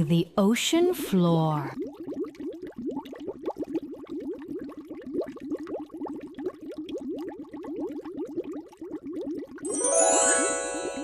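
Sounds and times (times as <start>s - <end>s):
underwater bubbling: 1.7s - 9.6s
bright chime: 9.7s - 11.0s.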